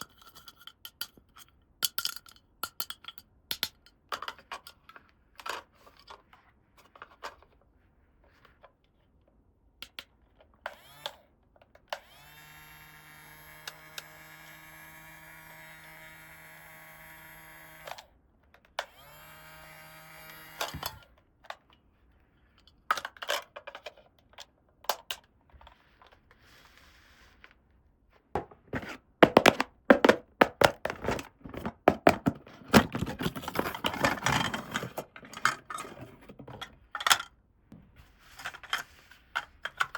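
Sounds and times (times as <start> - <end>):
steady buzzing tone: 12.2 - 17.9.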